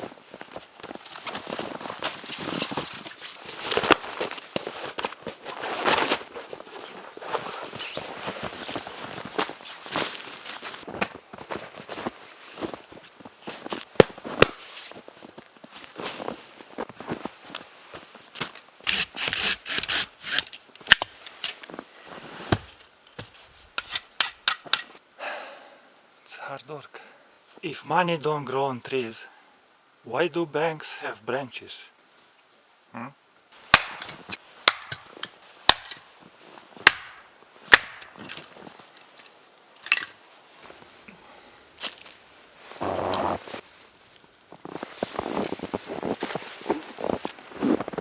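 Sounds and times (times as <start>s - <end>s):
rasping strokes on branches: 18.9s - 20.6s
axe chopping wood: 33.7s - 36.0s, 36.8s - 38.4s
branch snapping: 33.7s - 36.0s, 36.9s - 40.1s.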